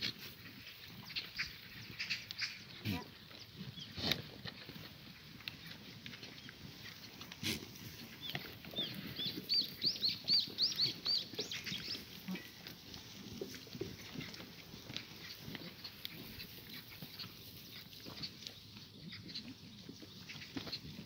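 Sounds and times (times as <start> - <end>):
bird chirping: 8.2 - 12.0.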